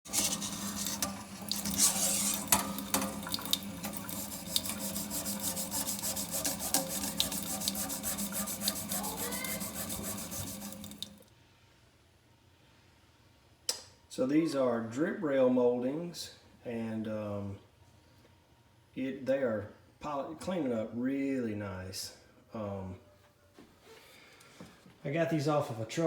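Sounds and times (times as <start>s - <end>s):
wet scrubbing on metal: 0.0s - 11.2s.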